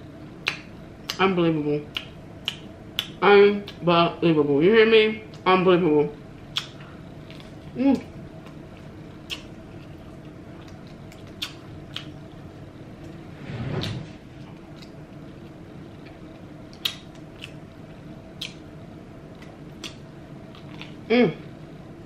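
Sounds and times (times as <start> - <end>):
low steady hum: 0.0 - 22.0
wet mouth smacks: 1.9 - 3.2, 6.5 - 6.8, 9.2 - 9.5, 11.2 - 12.2, 16.7 - 17.6, 18.4 - 18.6, 19.8 - 20.0
chewing fried fish: 6.5 - 12.6, 14.5 - 18.7, 19.3 - 21.1.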